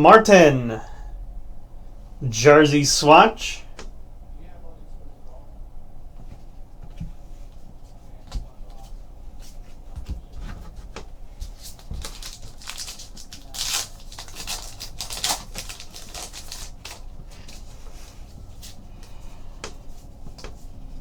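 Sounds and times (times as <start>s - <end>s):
pack wrappers rustling: 11.5s - 17.7s.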